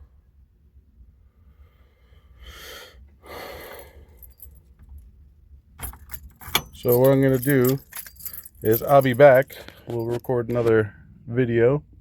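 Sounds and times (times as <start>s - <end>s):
heavy breathing: 1.4s - 4.5s.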